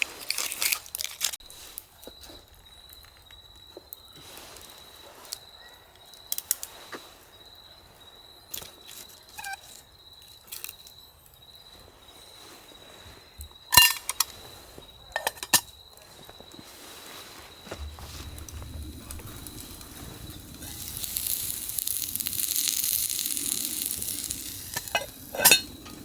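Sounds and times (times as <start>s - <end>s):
camp gear knocking and clinking: 13.6s - 16.4s, 17.6s - 20.8s, 23.7s - 26.0s
thin high insect-like trill: 17.6s - 26.0s.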